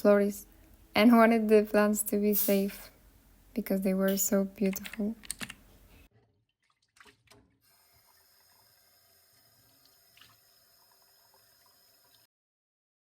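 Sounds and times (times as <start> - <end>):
faint running water hiss: 7.6 - 12.3.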